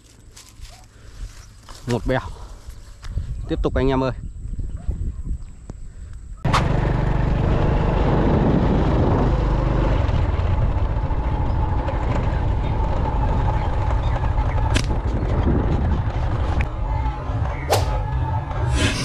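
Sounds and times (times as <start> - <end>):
vehicle engine running: 6.5 - 19.0.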